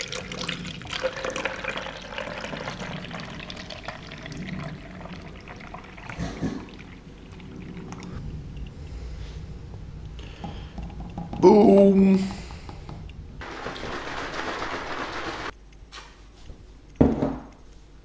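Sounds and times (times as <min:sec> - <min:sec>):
milk pouring into a cup: 0:00.0 - 0:08.1.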